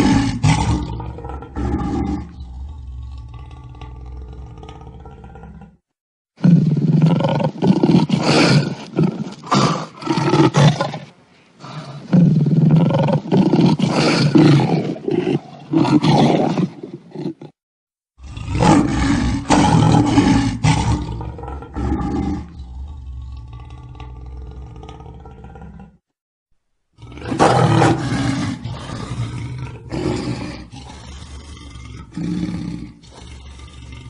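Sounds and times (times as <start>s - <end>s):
lion roaring: 0.0s - 5.8s, 18.2s - 26.0s, 27.0s - 34.0s.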